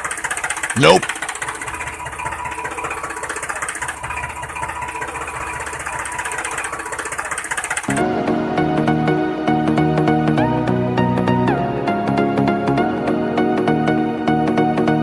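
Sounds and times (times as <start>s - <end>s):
small motor rattling: 0.0s - 7.9s
music: 7.9s - 15.0s.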